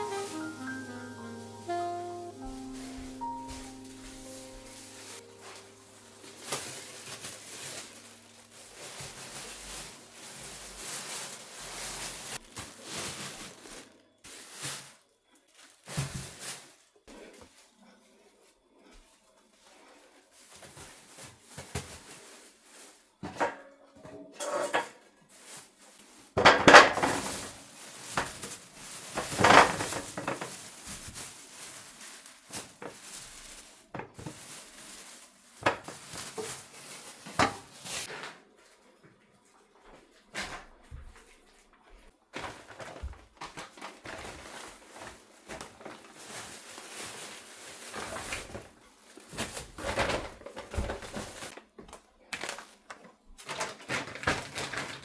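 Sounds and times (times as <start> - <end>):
dishes and utensils clinking: 23.2 - 25.0.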